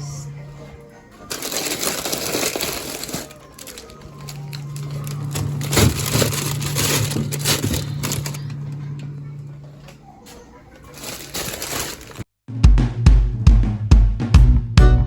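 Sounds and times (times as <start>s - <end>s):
plastic bins knocking: 1.3s - 8.4s, 10.9s - 12.2s
plastic packaging crinkling: 1.3s - 8.6s, 10.8s - 12.3s
loud drum beat: 12.5s - 15.0s.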